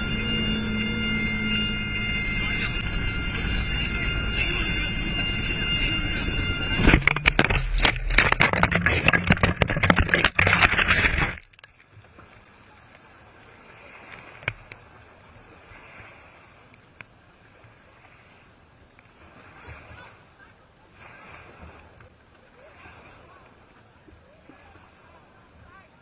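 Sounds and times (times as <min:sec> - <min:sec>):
helicopter crash rattling and crunching: 0:00.0 - 0:11.4
clicks: 0:02.4 - 0:11.8.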